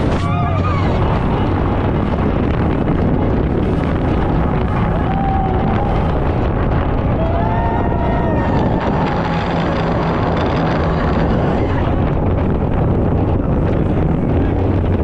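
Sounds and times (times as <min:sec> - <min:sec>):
speedboat engine drone: 0:00.0 - 0:15.0
wind buffeting microphone: 0:00.0 - 0:15.0.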